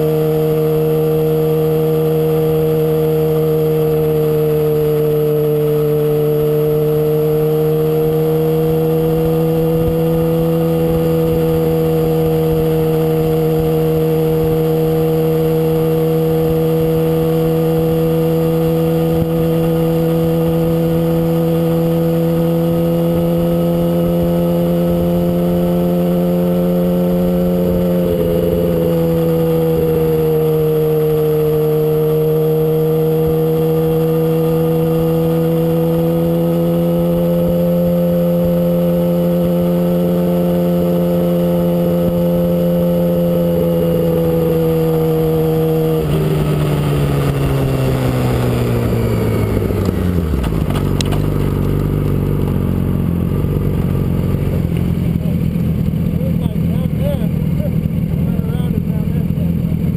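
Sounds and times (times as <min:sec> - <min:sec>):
motorcycle engine at high revs: 0:00.0 - 0:59.9
wind rumbling on microphone: 0:44.5 - 0:55.8.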